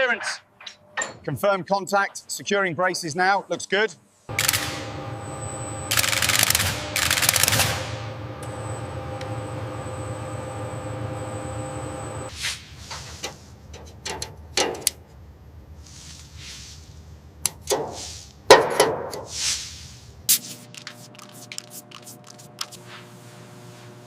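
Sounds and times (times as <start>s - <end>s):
metallic clanks and knocks: 0.2s - 1.3s
industrial machinery hum: 4.3s - 12.4s, 20.2s - 24.0s.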